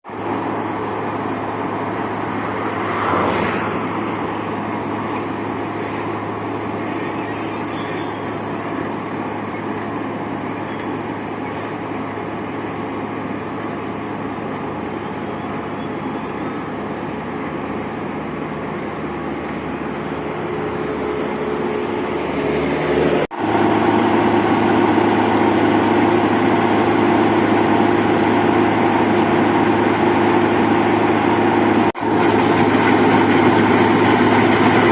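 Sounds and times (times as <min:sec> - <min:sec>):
heavy engine running: 0:00.0 - 0:34.9
high-pitched squeal: 0:02.8 - 0:11.8, 0:14.8 - 0:16.9.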